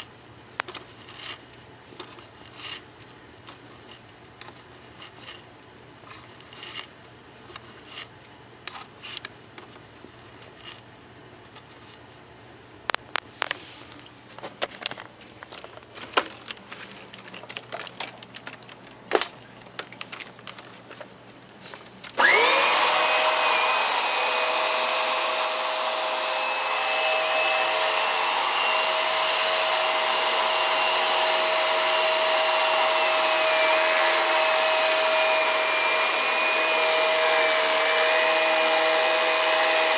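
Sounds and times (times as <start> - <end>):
upright vacuum cleaner running: 22.2 - 39.9.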